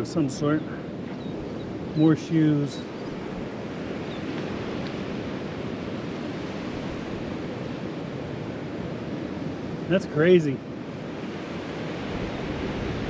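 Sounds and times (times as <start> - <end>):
surf washing onto beach: 0.0 - 13.0
wind noise: 10.9 - 13.0.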